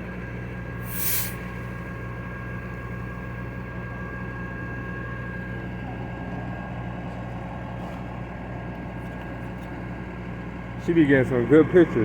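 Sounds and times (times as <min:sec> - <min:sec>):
faint steady whine: 0:00.0 - 0:07.0
large engine idling: 0:00.0 - 0:12.0.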